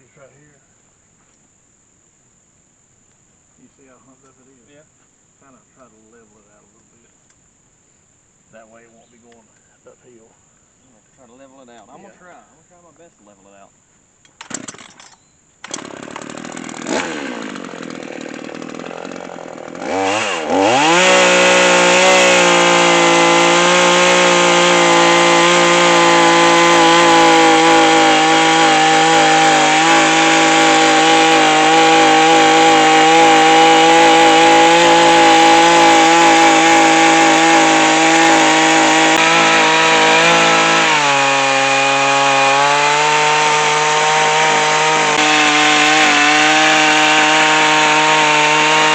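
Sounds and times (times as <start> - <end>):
chainsaw cutting log: 14.3 - 48.9.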